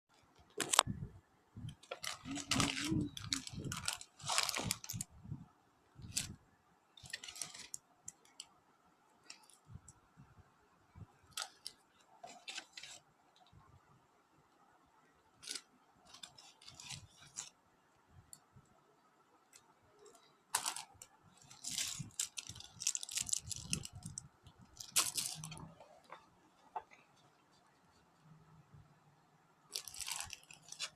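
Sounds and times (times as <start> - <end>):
packaging rustling and clicking: 1.8 - 5.1, 7.0 - 8.2, 20.5 - 27.0, 29.7 - 30.9.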